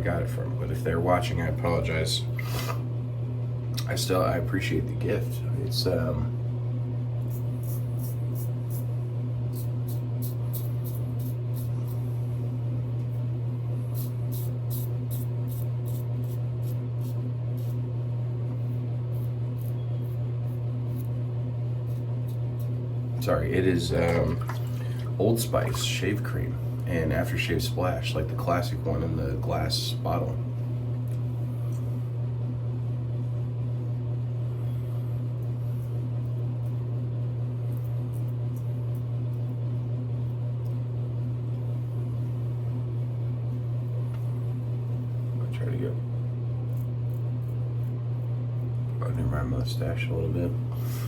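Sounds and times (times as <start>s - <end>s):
steady low hum: 0.0s - 51.0s
razor scraping stubble: 2.4s - 2.9s, 7.2s - 13.2s, 13.8s - 24.4s, 46.6s - 51.0s.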